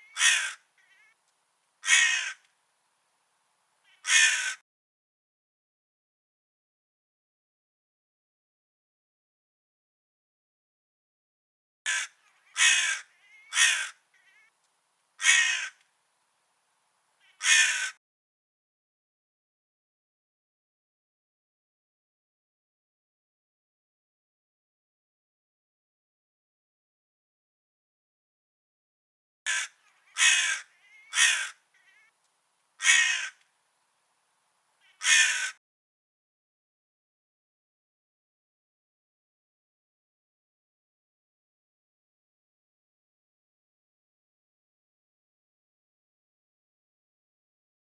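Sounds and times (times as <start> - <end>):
crow cawing: 0.0 - 1.2, 1.8 - 2.5, 3.9 - 4.6, 11.9 - 14.5, 15.2 - 15.8, 17.2 - 18.0, 29.5 - 32.1, 32.8 - 33.4, 34.8 - 35.6.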